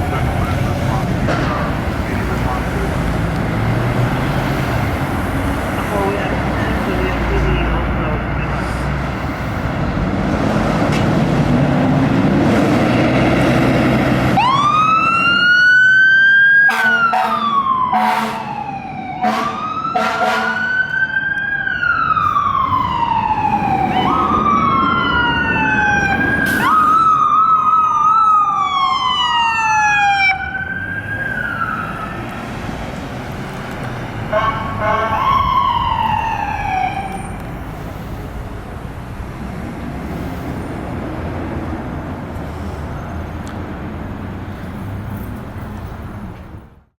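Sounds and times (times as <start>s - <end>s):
emergency sirens wailing: 0.0s - 44.6s
fire engine rumble: 0.0s - 47.0s
short horn blasts: 16.7s - 17.4s, 19.2s - 20.6s.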